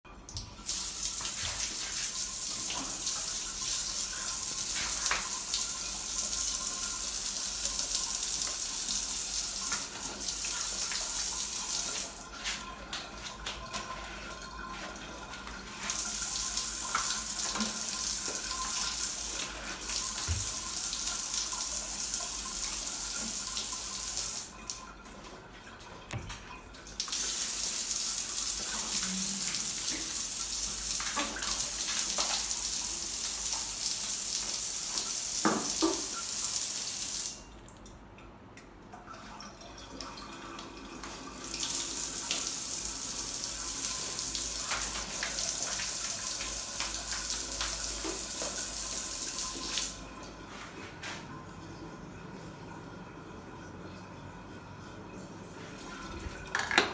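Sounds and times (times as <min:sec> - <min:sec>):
running water gushing: 0:00.4 - 0:37.4, 0:55.6 - 0:56.9.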